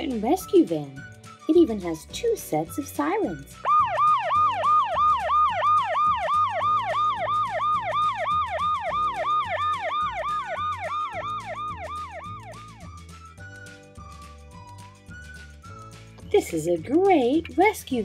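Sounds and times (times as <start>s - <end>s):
electronic siren wailing: 3.6s - 13.0s.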